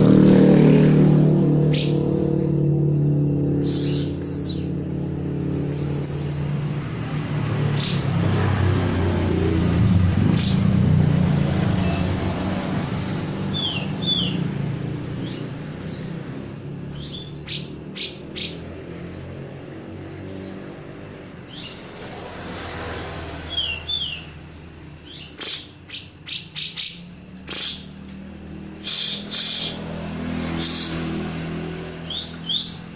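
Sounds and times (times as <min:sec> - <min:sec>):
sharp repeated bird calls: 0:00.0 - 0:19.3, 0:19.9 - 0:32.9
vehicle low hum: 0:00.0 - 0:25.4.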